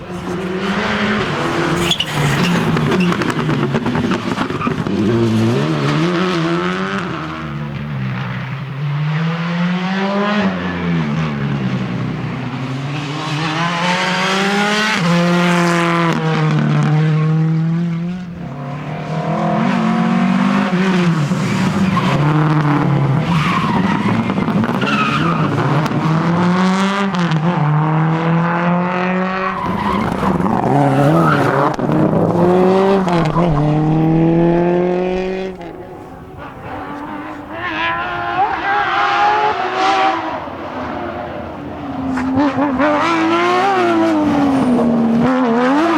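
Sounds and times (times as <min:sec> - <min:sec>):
tyre squeal and skidding: 0:00.0 - 0:06.1, 0:21.1 - 0:26.4, 0:29.3 - 0:32.0
rally car engines revving: 0:00.0 - 0:45.9.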